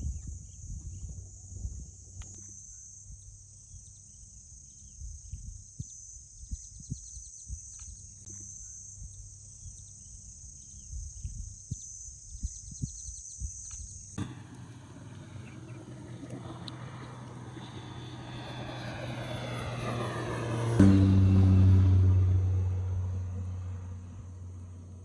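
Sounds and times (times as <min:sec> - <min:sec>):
insects buzzing: 0:14.2 - 0:20.8
low rumble: 0:14.2 - 0:25.0.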